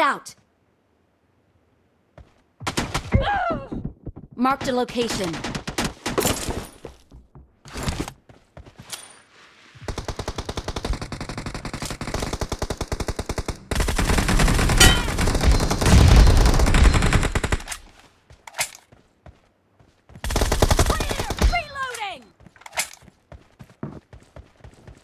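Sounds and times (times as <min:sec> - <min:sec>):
video game automatic gunfire: 0:09.9 - 0:17.7.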